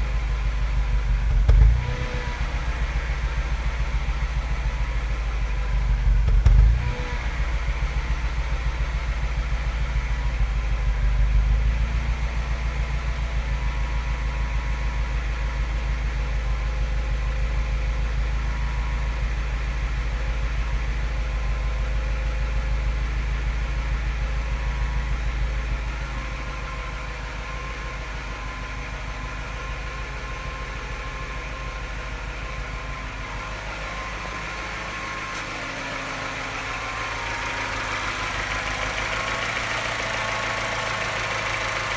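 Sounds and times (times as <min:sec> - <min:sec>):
engine idling: 0:00.0 - 0:41.9
engine tap and misfire: 0:01.1 - 0:03.2, 0:06.0 - 0:07.1.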